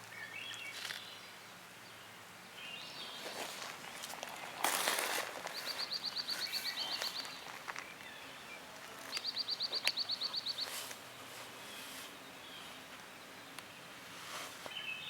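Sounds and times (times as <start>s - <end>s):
songbird trilling: 2.6s - 13.6s.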